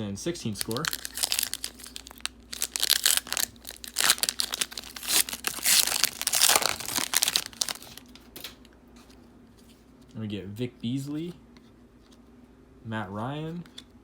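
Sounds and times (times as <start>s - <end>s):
plastic wrapper tearing and crinkling: 0.5s - 8.6s.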